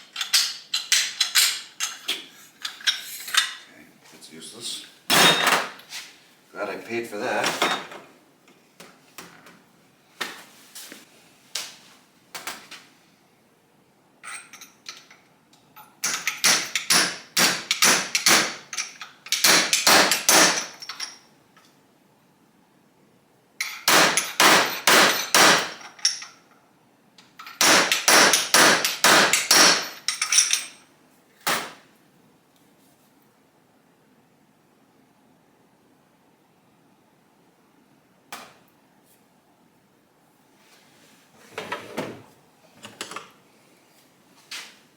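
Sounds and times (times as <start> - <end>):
hammer striking: 27.6 - 30.0.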